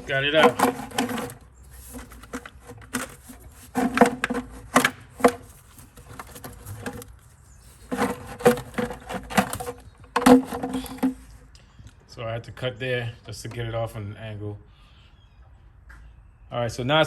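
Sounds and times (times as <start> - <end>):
car parts knocking and clattering: 0.0 - 11.4.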